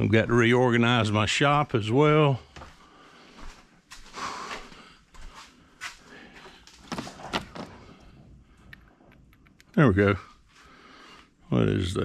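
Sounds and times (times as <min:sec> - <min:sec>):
tools scraping and rustling: 0:06.7 - 0:08.0.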